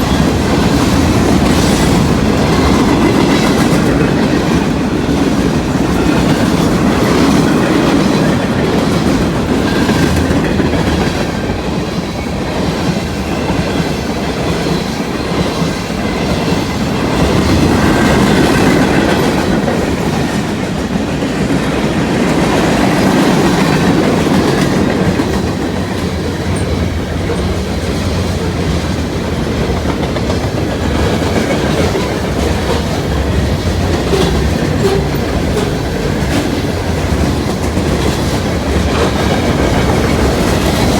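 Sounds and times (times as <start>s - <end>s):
clickety-clack over rail joints: 0.0s - 40.9s
freight train wheels rumbling: 0.0s - 40.9s.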